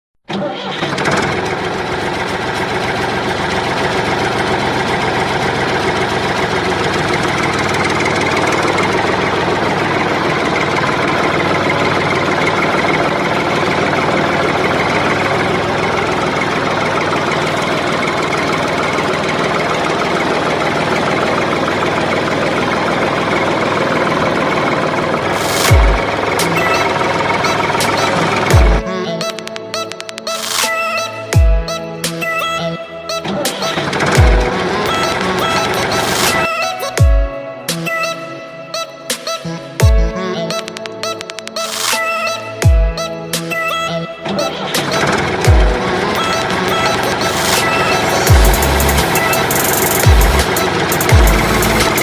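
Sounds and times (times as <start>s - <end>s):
small tractor motor rattling: 0.3s - 30.2s, 32.2s - 36.5s, 43.5s - 52.0s.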